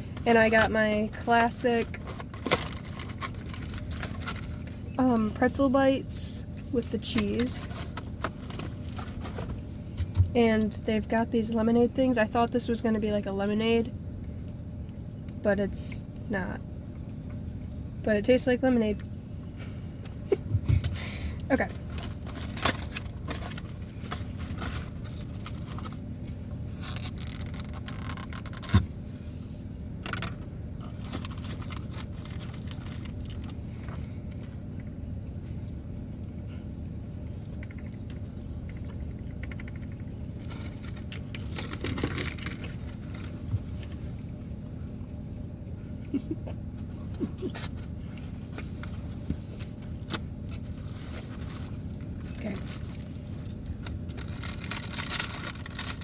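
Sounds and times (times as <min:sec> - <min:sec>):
low rumble inside a car: 0:00.0 - 0:56.0
food packaging rustling: 0:01.8 - 0:04.9, 0:07.0 - 0:09.7, 0:21.7 - 0:28.8, 0:30.2 - 0:34.5, 0:40.4 - 0:43.9, 0:47.4 - 0:56.0.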